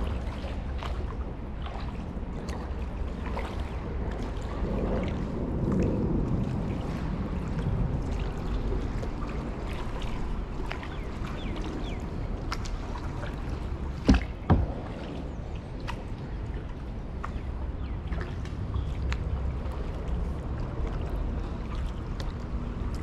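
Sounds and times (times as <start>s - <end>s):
water moving along hull: 0.0s - 23.0s
kayak paddle strokes: 12.5s - 16.0s
sharp knocks: 14.1s - 14.9s.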